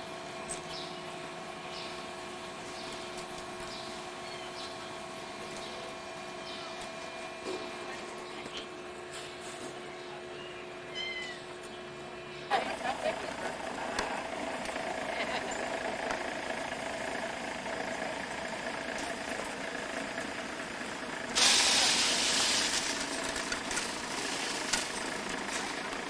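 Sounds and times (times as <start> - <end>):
loud hiss: 21.3 - 23.2.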